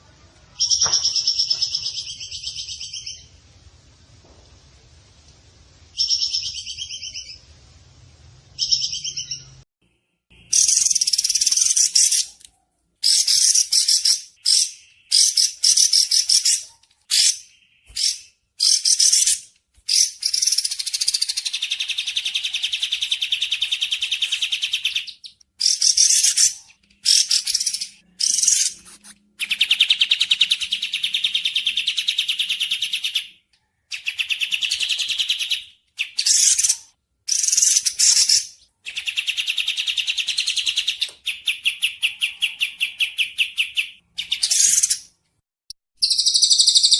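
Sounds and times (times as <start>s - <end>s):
bird trills and chattering: 46.0s - 46.9s.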